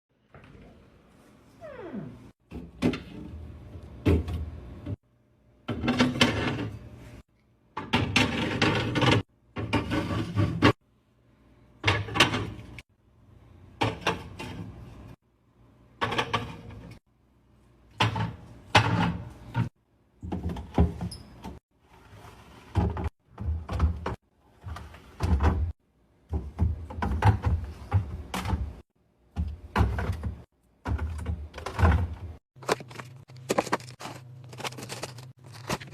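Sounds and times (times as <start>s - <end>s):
household items clunking and knocking: 2.4s - 5.0s, 5.6s - 6.9s, 7.7s - 10.8s, 11.8s - 12.9s, 13.8s - 15.1s, 18.0s - 35.9s
cupboard doors opening and closing: 18.0s - 21.6s, 22.3s - 35.9s.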